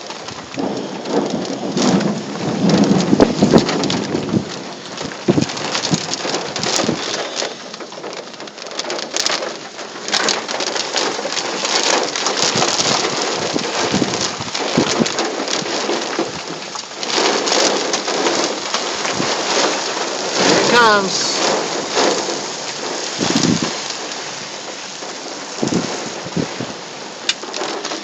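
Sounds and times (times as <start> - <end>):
heavy rain drumming on a car: 0.0 - 28.0.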